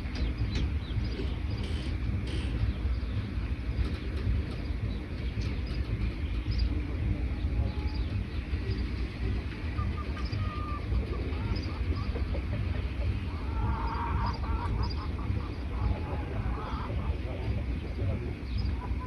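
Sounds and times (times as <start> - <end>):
birds chirping: 0.0 - 19.0
steady low rumble: 0.0 - 19.0.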